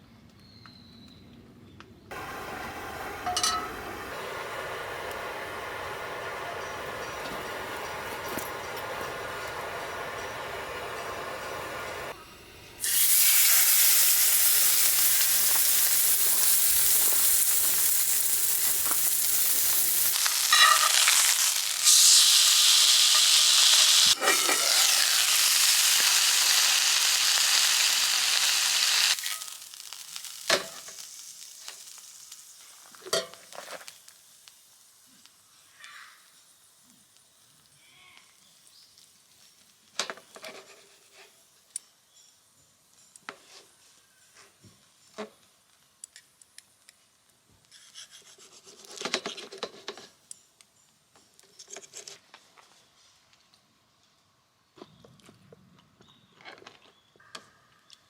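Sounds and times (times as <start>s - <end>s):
chicken sizzling on a grill: 2.1s - 12.2s, 12.8s - 41.6s.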